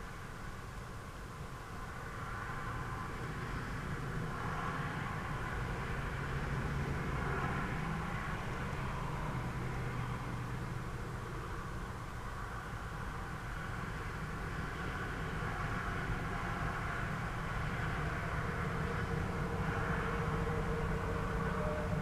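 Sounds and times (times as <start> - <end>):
diesel locomotive rumble: 1.4 - 22.0.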